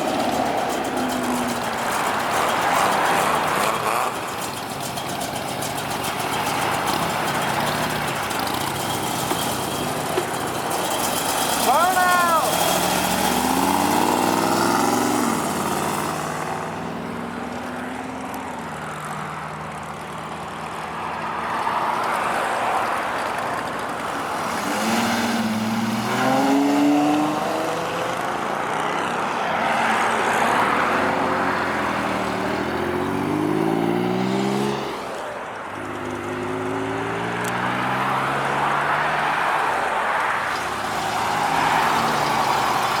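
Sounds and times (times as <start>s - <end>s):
car engines revving past: 0.0s - 43.0s.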